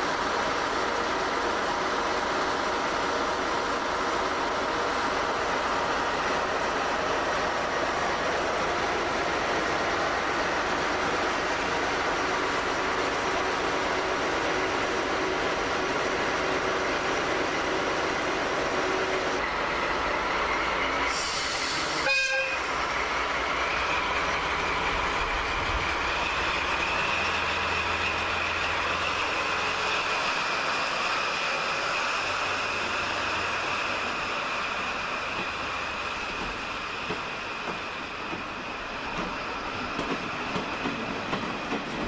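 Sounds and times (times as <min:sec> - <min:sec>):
diesel locomotive running: 0:00.0 - 0:42.0
train coaches rolling past: 0:00.0 - 0:42.0
locomotive whistle: 0:21.1 - 0:22.9.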